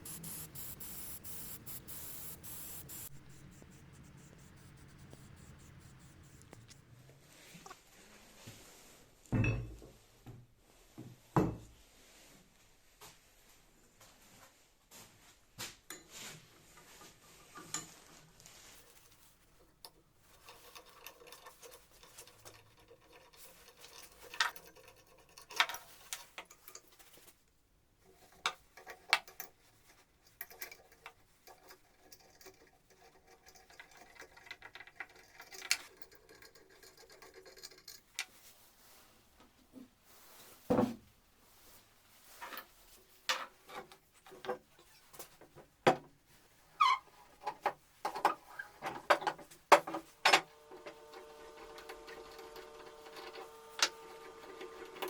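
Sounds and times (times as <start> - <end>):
small clicks and taps: 0.1 - 6.8.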